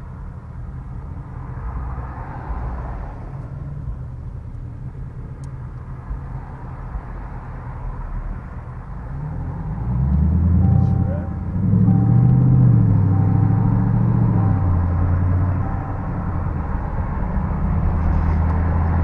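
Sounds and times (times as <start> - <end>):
car engine accelerating: 8.0 - 19.0.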